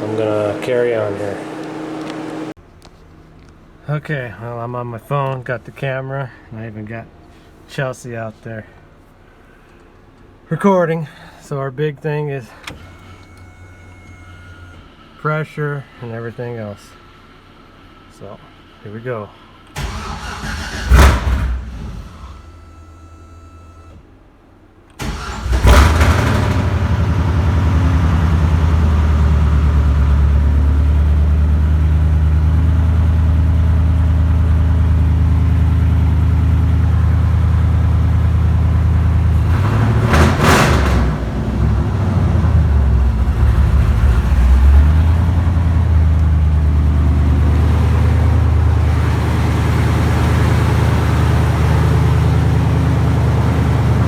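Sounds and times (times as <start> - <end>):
engine starting and running: 0.0 - 3.5, 12.5 - 54.0.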